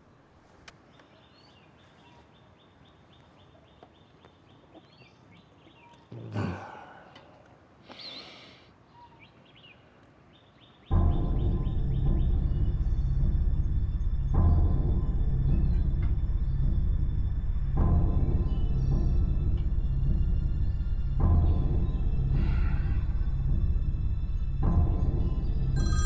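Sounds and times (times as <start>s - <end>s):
small birds chirping: 0.0s - 17.1s
loud deep music: 10.9s - 26.0s.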